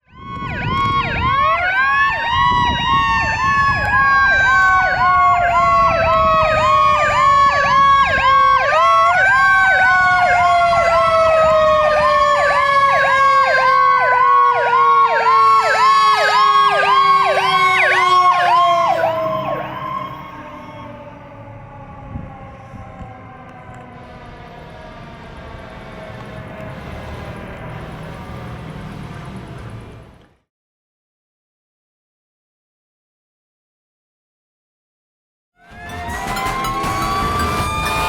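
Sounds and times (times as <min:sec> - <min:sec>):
wailing siren: 0:00.0 - 0:28.6, 0:35.6 - 0:38.0
fast yelping siren: 0:00.1 - 0:24.1, 0:35.6 - 0:38.0.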